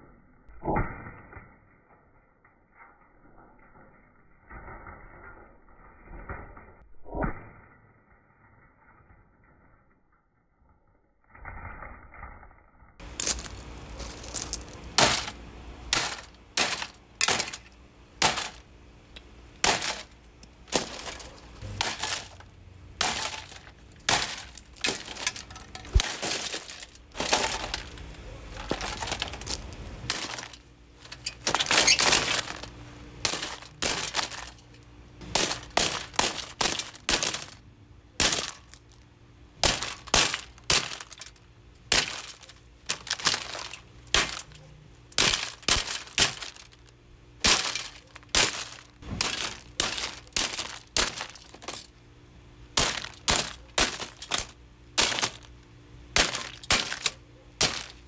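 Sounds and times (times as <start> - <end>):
plastic cracking and breaking: 13.0 - 37.6, 38.2 - 39.0, 39.6 - 51.9, 52.8 - 55.6, 56.2 - 58.0
plastic fan housing being smashed: 13.0 - 37.6, 38.2 - 39.0, 39.6 - 52.0, 52.7 - 58.0.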